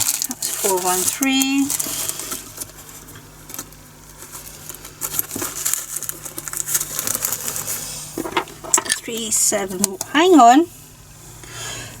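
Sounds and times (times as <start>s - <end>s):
resin beads rattling in plastic: 0.0s - 2.8s, 3.5s - 9.5s.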